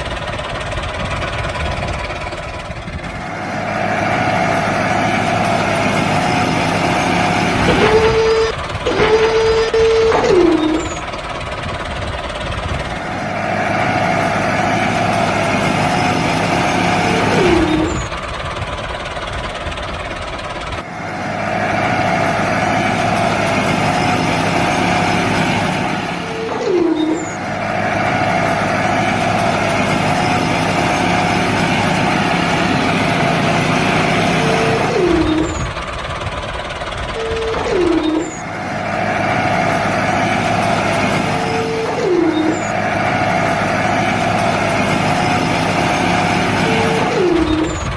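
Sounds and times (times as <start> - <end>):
mini tractor engine running: 0.0 - 47.9
short falling whine: 37.2 - 38.6.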